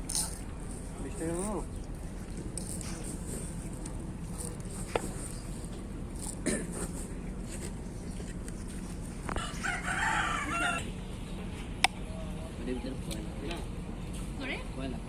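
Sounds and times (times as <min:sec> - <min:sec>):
rooster crowing: 0:09.3 - 0:10.9.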